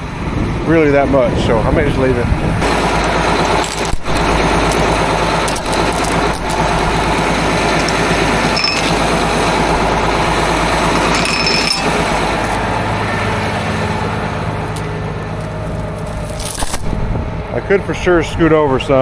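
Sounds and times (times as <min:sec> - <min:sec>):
mechanical clatter: 0:02.6 - 0:12.8, 0:13.4 - 0:17.0
tractor engine running: 0:02.6 - 0:16.7.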